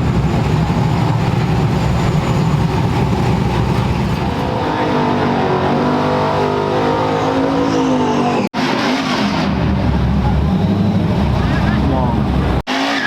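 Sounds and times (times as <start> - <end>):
truck engines revving: 0.0 - 13.0.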